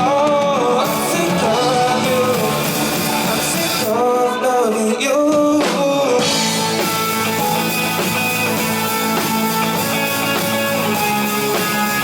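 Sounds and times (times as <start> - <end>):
rock band playing: 0.0 - 12.0.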